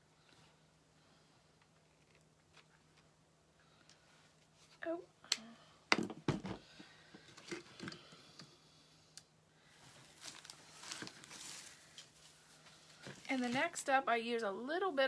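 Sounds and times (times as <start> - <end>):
craft materials crinkling: 9.8 - 13.8.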